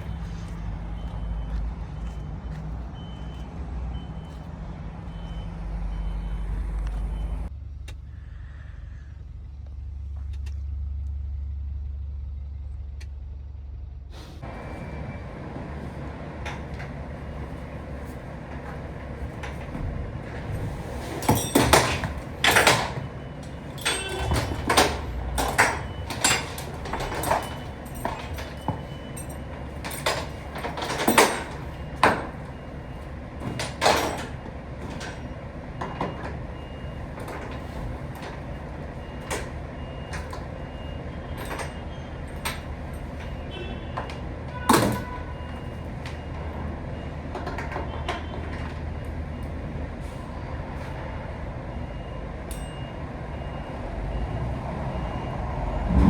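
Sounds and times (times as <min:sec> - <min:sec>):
truck engine rumbling: 0:00.0 - 0:56.0
sharp knocks and clatter: 0:16.4 - 0:32.6.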